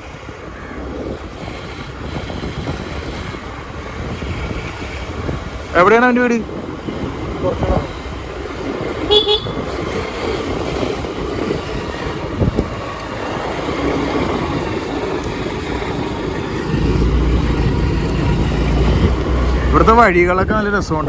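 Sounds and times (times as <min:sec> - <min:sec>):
wind on microphone: 0:00.0 - 0:21.0
motor scooter running: 0:06.7 - 0:20.4.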